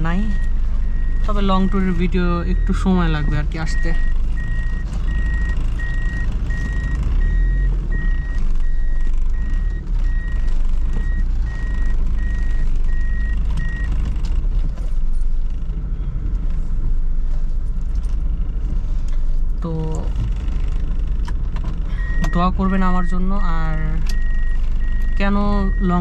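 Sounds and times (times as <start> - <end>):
car engine rumble: 0.0 - 26.0
reversing beeper: 0.2 - 13.9.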